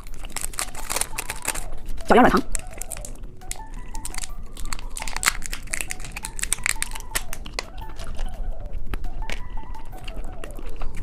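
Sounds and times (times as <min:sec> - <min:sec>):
plastic wrapper crinkling: 0:00.0 - 0:08.4.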